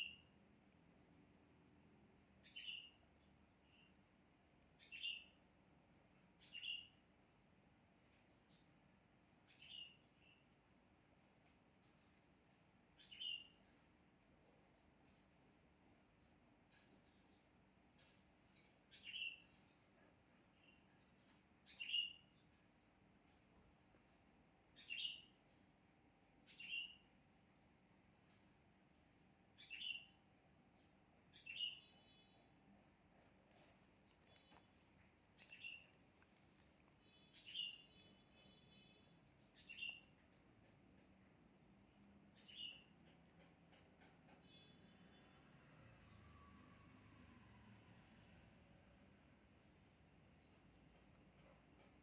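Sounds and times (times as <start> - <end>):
faint bird chirps: 0.0 - 0.4, 2.3 - 4.1, 4.7 - 5.4, 6.3 - 7.1, 9.4 - 10.6, 13.0 - 14.6, 16.7 - 22.6, 24.7 - 25.6, 26.4 - 27.2, 29.5 - 40.4, 41.9 - 43.2, 44.3 - 47.9.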